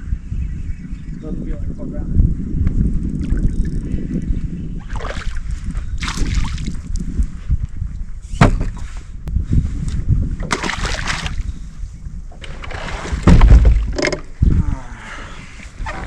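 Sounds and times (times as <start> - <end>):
water splashing and sloshing: 4.8 - 7.0, 10.4 - 11.5, 12.3 - 14.3.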